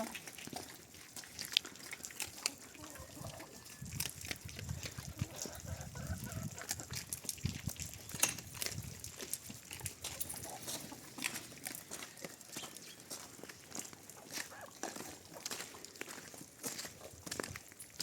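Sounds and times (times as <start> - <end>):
chickens clucking softly: 4.8 - 7.1.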